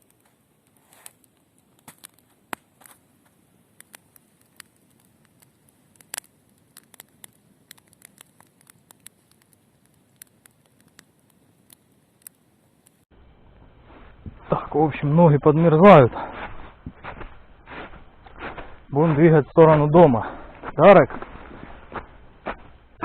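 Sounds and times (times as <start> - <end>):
sharp clicks and crackles: 3.8 - 13.1.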